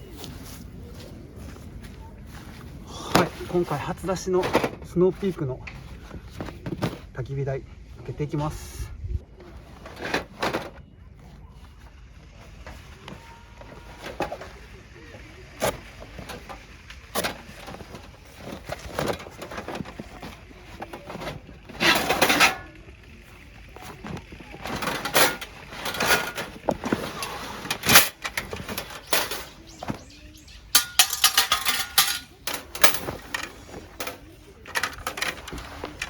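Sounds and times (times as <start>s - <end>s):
metallic clinks and clatters: 30.7s - 36.0s.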